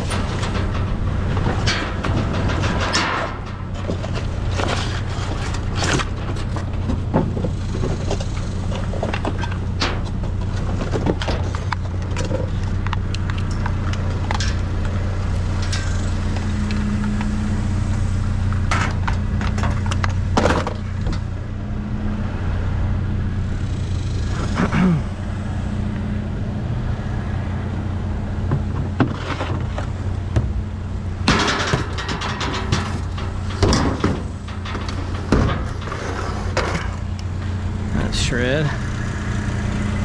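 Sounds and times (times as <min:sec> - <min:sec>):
scrap junk clattering: 0:00.0 - 0:21.4, 0:28.4 - 0:40.0
low engine hum: 0:00.0 - 0:40.0.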